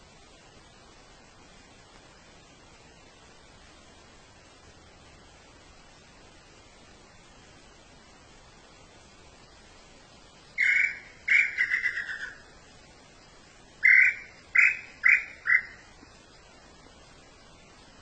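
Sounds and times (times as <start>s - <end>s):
steady hiss: 0.0s - 18.0s
bird calling: 10.6s - 12.5s, 13.8s - 15.9s.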